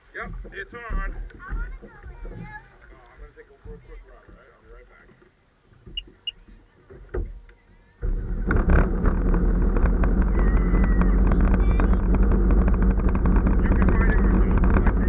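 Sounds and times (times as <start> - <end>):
water and wind noise: 0.0 - 15.0
jet ski engine running: 8.0 - 15.0.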